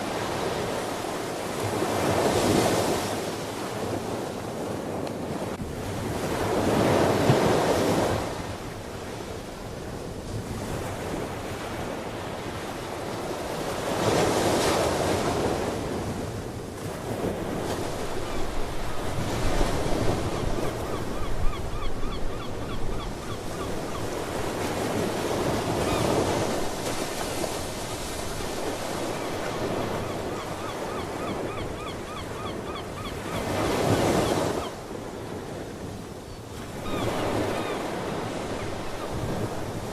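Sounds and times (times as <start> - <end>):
sea birds calling: 17.9 - 24.5, 25.4 - 26.5, 28.8 - 34.8, 36.2 - 39.8.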